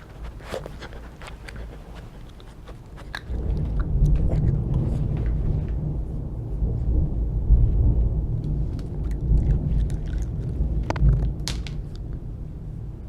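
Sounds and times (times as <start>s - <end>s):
dog gnawing on a chew: 0.0s - 6.1s, 8.4s - 12.3s
thunder rumbling: 2.9s - 13.0s.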